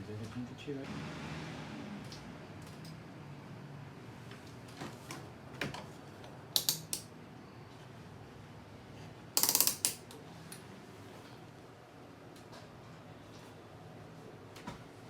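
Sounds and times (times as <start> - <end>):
sharp mechanical clicks: 6.6 - 7.1, 9.4 - 10.1
rapid ratcheting rattle: 9.4 - 10.0.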